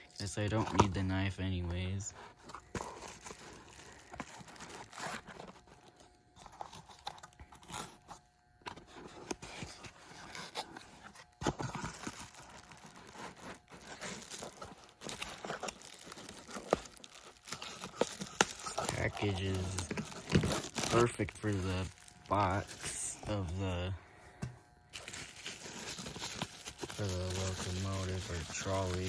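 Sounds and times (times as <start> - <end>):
cardboard packaging rustling: 0.4 - 24.0, 24.7 - 29.0.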